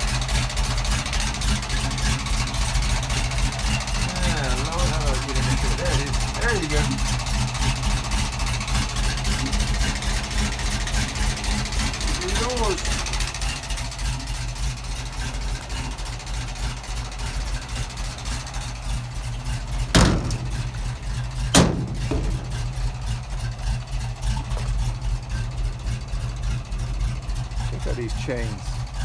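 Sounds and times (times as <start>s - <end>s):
truck engine idling: 0.0s - 29.0s
sharp knocks: 19.8s - 23.6s.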